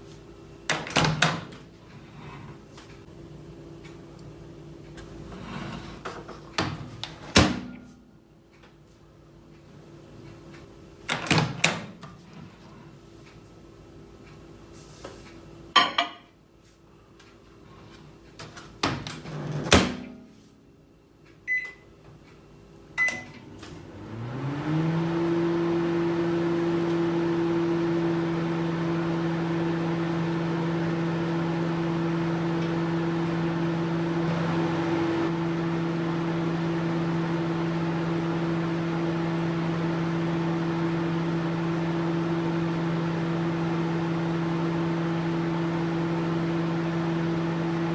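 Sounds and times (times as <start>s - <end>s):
microwave hum: 0.0s - 47.9s
keypad beeps: 21.5s - 21.8s, 23.0s - 23.3s
fan whir: 22.9s - 47.9s.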